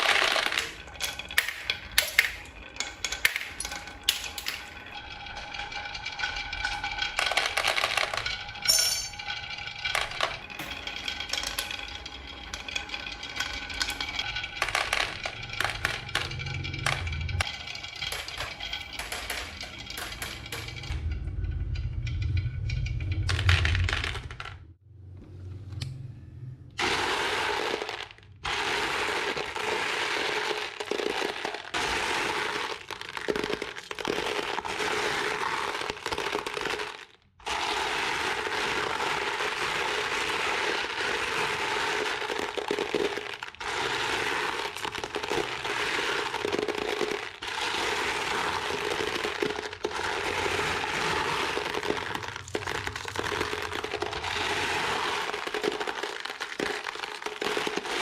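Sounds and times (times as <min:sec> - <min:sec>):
toy tractor crunching over ground: 0:00.0 - 0:08.6, 0:26.8 - 0:58.0.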